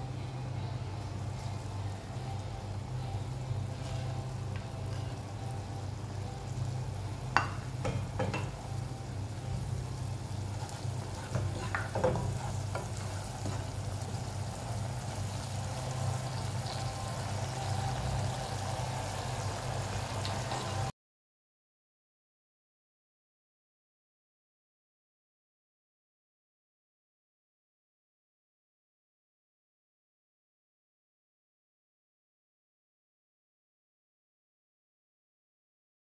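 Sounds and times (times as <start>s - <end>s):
steady low hum: 0.0s - 20.9s
beans sizzling in hot oil: 1.1s - 20.9s
spatula scraping a pot: 10.5s - 13.8s.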